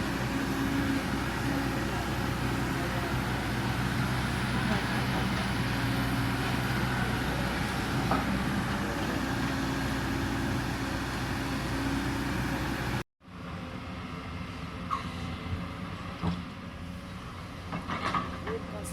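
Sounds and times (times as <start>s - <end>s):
diesel engine humming: 0.0s - 14.8s.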